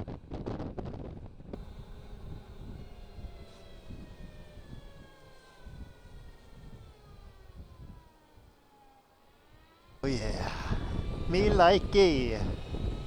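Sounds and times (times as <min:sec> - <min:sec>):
wind rumble on microphone: 0:00.0 - 0:04.2, 0:10.7 - 0:13.0
electric motorcycle motor whine: 0:00.4 - 0:10.0, 0:10.7 - 0:13.0.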